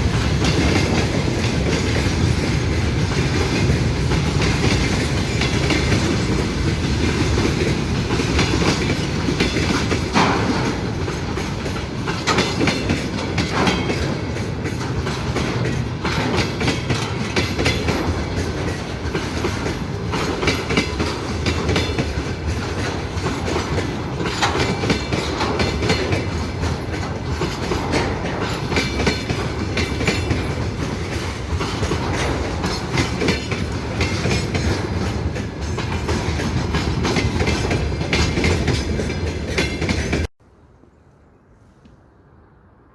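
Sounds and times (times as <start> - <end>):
wheels clattering over rail joints: 0.0 - 40.3
railway cars rumbling: 0.0 - 42.9.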